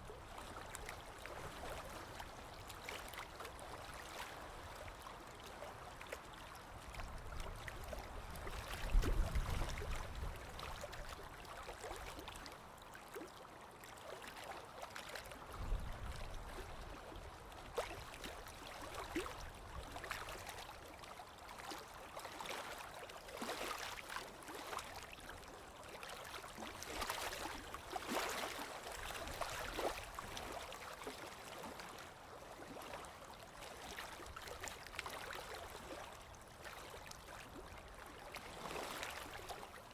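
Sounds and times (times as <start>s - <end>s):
water drips and patters: 0.3s - 12.6s.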